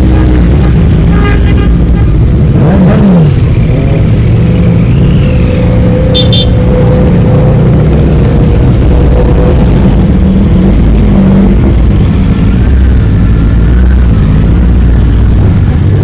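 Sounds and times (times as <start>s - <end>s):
motorcycle revving: 0.0s - 16.0s
short high-pitched beeps: 6.2s - 6.6s.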